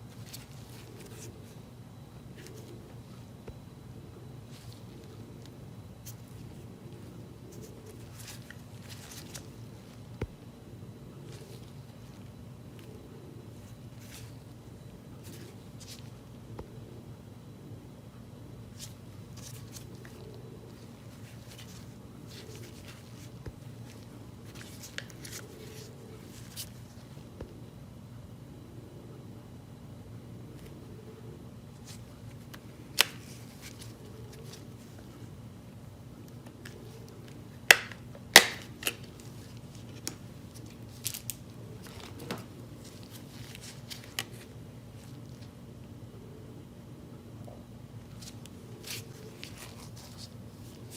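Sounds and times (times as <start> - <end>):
soft rustles: 0.0 - 1.6, 4.4 - 10.4, 11.2 - 16.3, 18.7 - 27.4, 31.7 - 35.4, 38.8 - 45.6, 48.0 - 50.9
steady low hum: 0.0 - 50.9.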